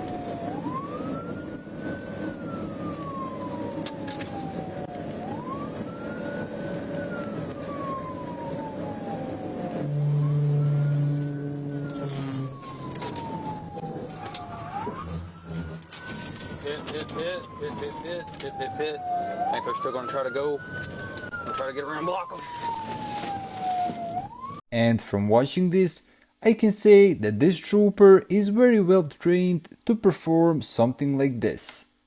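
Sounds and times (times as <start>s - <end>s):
engine and road noise: 0.0s - 24.5s
police siren wailing: 0.0s - 24.6s
loud low horn: 9.5s - 13.2s, 14.3s - 16.2s.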